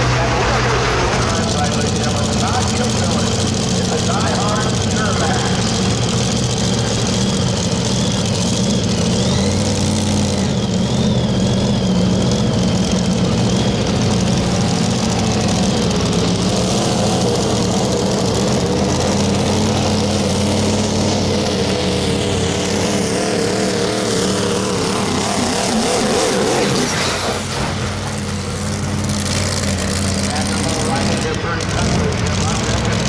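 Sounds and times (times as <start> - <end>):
high whine: 0.0 - 6.1
diesel truck engine under load: 0.0 - 33.0.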